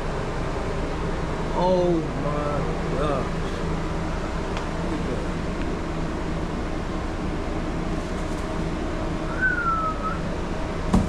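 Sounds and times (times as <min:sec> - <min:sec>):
machine motor humming: 0:00.0 - 0:11.0
short high whistle: 0:09.3 - 0:10.2.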